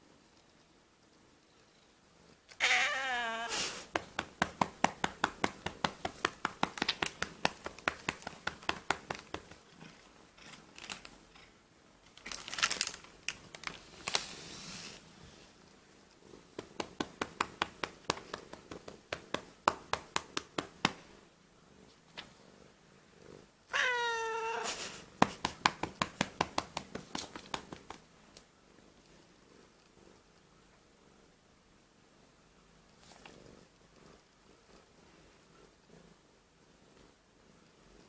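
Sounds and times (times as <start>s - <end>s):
cat meowing: 2.5s - 3.8s, 23.7s - 24.8s
hand patting cat: 3.5s - 9.6s, 16.5s - 21.2s, 24.7s - 28.1s.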